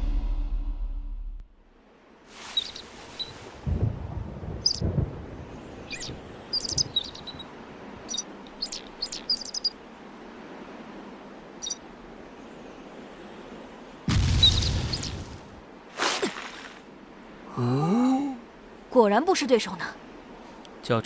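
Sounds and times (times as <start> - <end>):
faint outdoor hiss: 1.5 - 21.0
birds chirping: 2.4 - 9.9, 10.8 - 15.6.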